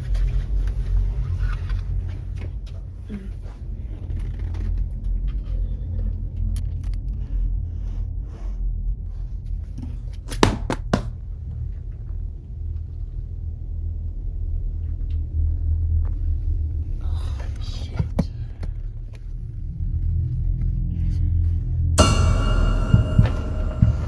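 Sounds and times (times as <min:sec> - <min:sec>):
sharp knocks: 0:10.3 - 0:11.2, 0:22.0 - 0:24.0.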